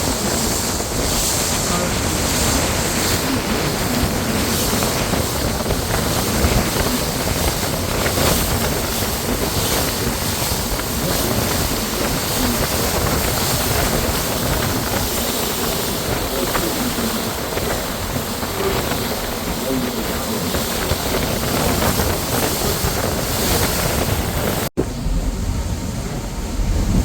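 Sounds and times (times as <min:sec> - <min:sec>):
boat rushing through water: 0:00.0 - 0:27.0
wind buffeting microphone: 0:00.0 - 0:27.0.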